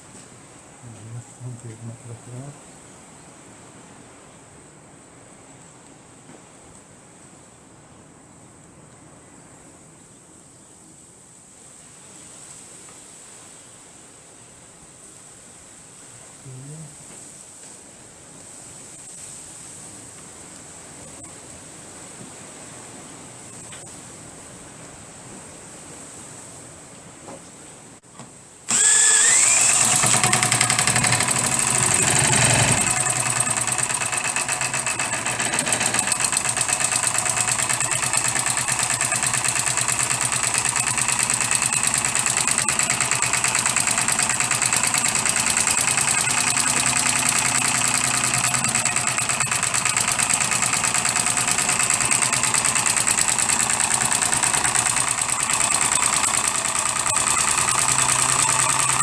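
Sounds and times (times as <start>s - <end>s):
model diesel engine running: 28.7s - 59.0s.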